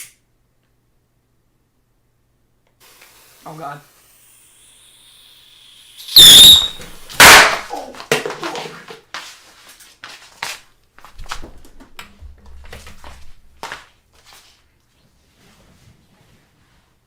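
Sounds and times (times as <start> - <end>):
shrill whistle: 5.2 - 7.6
firework bangs: 6.0 - 8.1.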